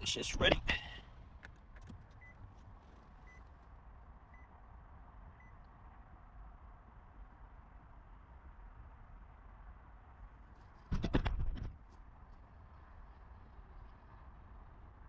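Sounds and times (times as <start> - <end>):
vehicle warning chime beeps: 2.2 - 2.4, 3.2 - 3.5, 4.3 - 4.6, 5.4 - 5.6.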